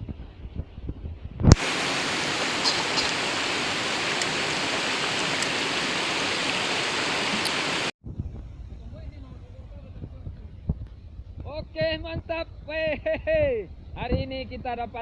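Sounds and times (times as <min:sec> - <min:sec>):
flowing river water: 0:01.5 - 0:07.9.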